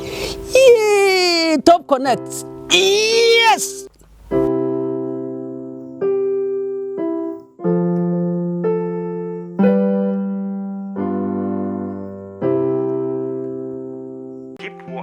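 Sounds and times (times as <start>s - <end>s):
slow keyboard chords: 0.0s - 0.7s, 3.8s - 15.0s.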